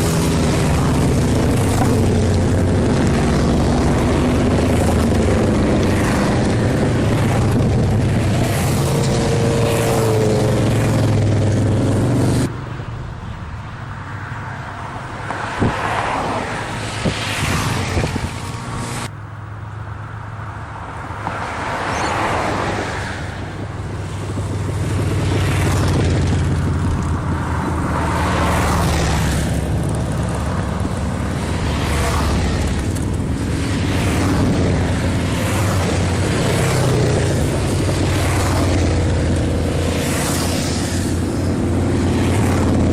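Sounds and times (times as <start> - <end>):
motorcycles riding past: 0.0 - 12.5, 21.3 - 42.9.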